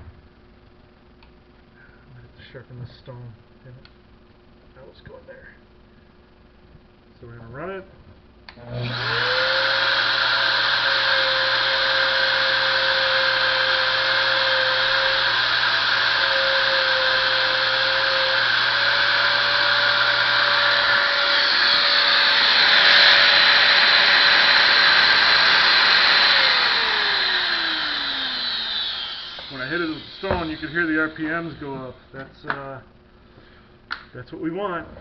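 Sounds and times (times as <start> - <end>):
angle grinder motor whining: 8.6 - 32.0.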